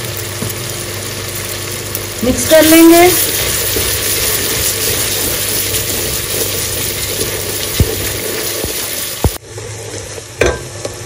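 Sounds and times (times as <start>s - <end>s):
masala sizzling in hot oil: 0.0s - 11.0s
wooden spatula stirring: 2.7s - 9.4s.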